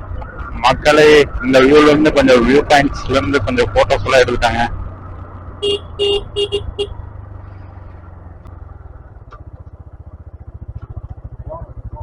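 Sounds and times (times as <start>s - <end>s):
motorcycle engine running: 0.0s - 12.0s
vehicle horn beeps: 5.6s - 7.0s.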